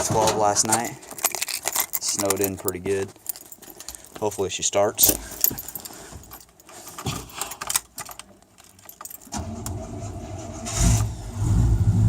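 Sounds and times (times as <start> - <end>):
keys jingling in ignition: 0.6 - 9.6
engine cranking on starter: 9.3 - 12.0.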